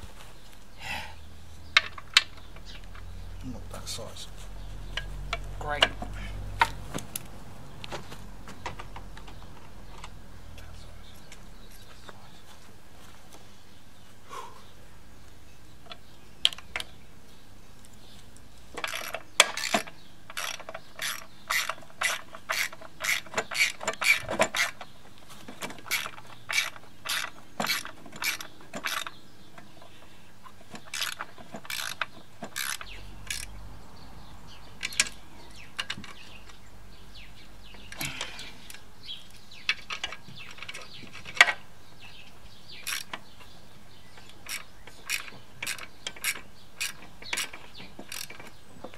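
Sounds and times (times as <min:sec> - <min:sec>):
socket ratchet clicking: 0:18.8 - 0:24.8, 0:25.8 - 0:29.2, 0:30.8 - 0:33.6, 0:42.8 - 0:43.3, 0:44.2 - 0:48.6.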